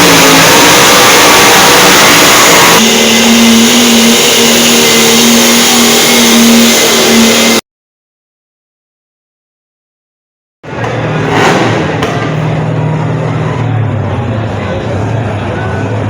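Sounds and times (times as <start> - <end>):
truck engine revving hard: 0.0 - 7.6, 10.7 - 16.0.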